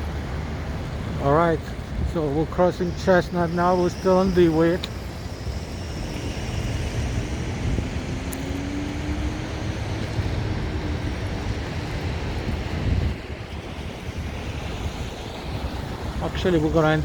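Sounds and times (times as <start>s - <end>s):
wind buffeting microphone: 0.0s - 17.0s
vehicle engine passing: 3.8s - 13.2s.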